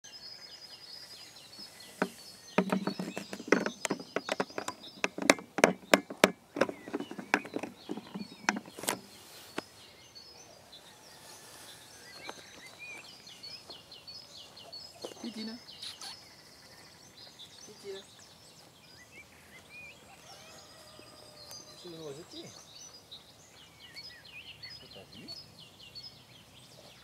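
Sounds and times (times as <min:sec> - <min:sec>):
songbirds singing: 0:00.0 - 0:27.0
sharp clicks and knocks: 0:02.0 - 0:09.1.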